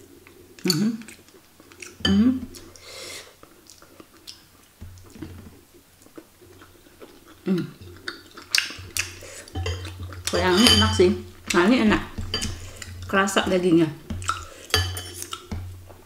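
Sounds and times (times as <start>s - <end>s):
chewing: 0.1s - 10.6s, 14.0s - 16.0s
person humming: 2.1s - 2.5s.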